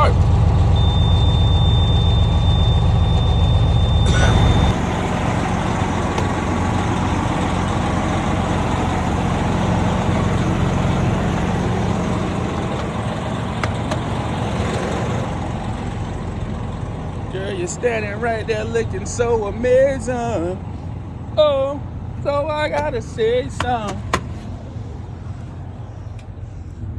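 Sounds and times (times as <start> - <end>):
diesel engine running: 0.0 - 26.9
high-pitched beep: 0.8 - 4.8.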